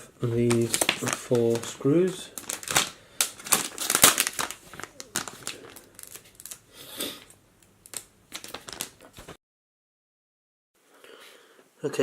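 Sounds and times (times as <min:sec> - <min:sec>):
plastic handling noises: 0:00.2 - 0:09.4.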